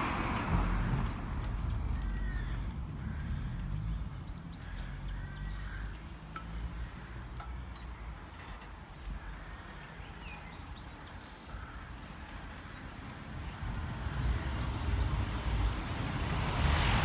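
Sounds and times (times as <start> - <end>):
birds chirping: 0.7 - 15.9.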